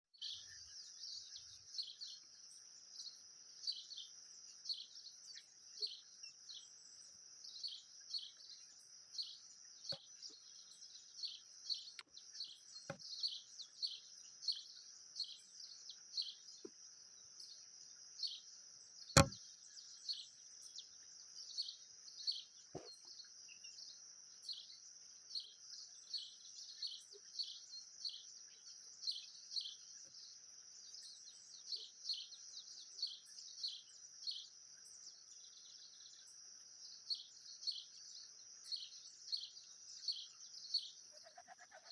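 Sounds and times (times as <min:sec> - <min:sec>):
small bird chirping: 0:00.2 - 0:41.9
sharp click: 0:19.2 - 0:19.4.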